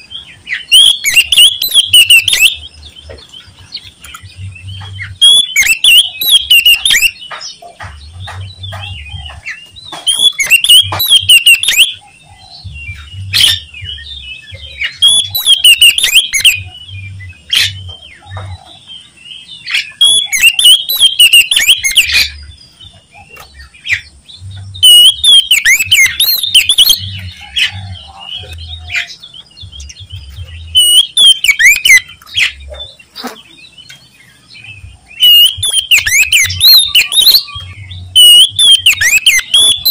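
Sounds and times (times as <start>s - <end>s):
bird singing sharp phrases: 0.0s - 39.9s
short bird calls: 30.7s - 34.0s.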